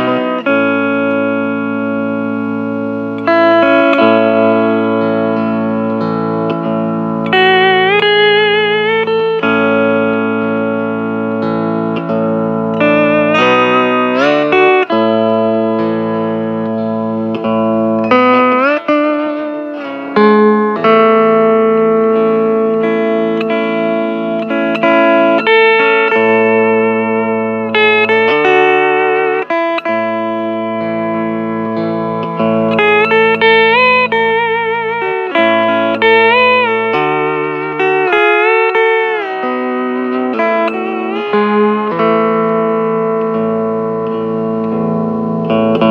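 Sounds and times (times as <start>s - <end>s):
sustained chords: 0.0s - 19.6s, 20.4s - 45.9s
steel guitar slow melody: 0.0s - 45.9s
low accompanying notes: 0.1s - 10.5s, 27.6s - 43.4s.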